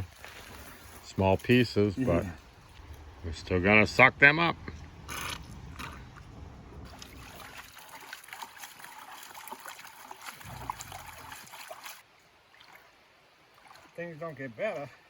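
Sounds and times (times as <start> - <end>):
crackling drips: 4.6 - 12.9
water sloshing in a pan: 6.9 - 14.0.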